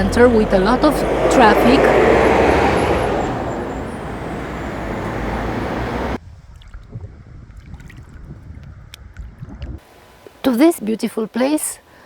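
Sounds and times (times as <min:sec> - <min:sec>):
street traffic rumble: 0:00.0 - 0:06.2.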